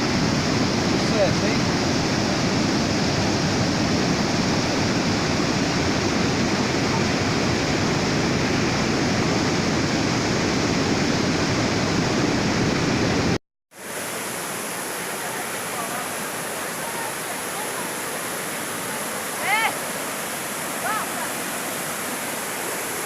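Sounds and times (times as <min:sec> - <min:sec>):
rushing flowing water: 0:00.0 - 0:23.0.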